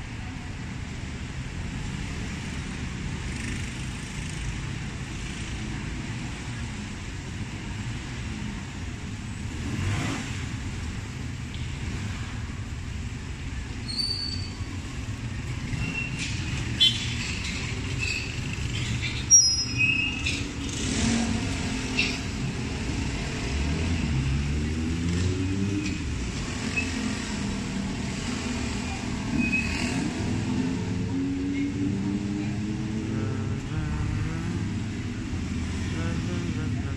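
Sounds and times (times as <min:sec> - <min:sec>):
road traffic engines rumbling: 0:00.0 - 0:36.9
short high squeaks: 0:13.8 - 0:14.6.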